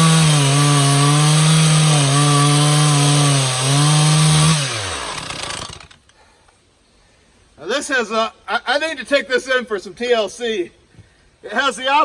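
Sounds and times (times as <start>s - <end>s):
chainsaw cutting at high revs: 0.0s - 6.0s.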